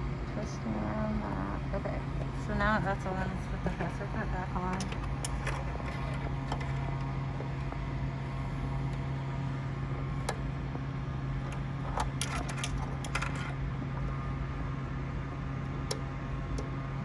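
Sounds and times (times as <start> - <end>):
steady low hum: 0.0 - 17.0
small clicks and knocks: 11.4 - 13.6.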